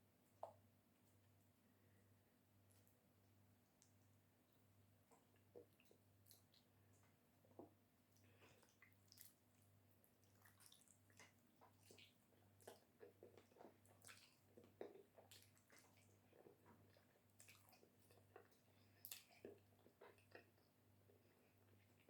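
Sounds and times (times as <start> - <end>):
wet chewing and squelching: 5.0 - 22.0.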